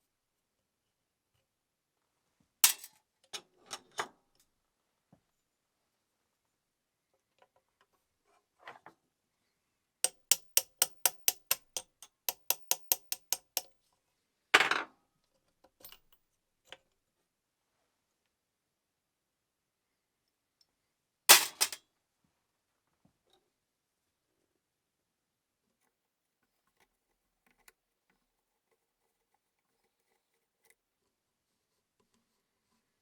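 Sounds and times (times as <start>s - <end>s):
sharp metallic clicks: 10.1s - 13.7s.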